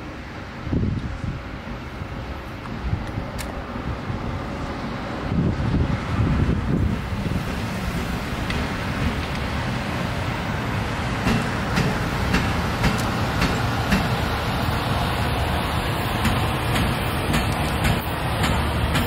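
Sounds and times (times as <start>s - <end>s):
train low rumble: 0.0s - 19.0s
wheels clicking over rail joints: 11.2s - 14.3s, 16.1s - 19.0s.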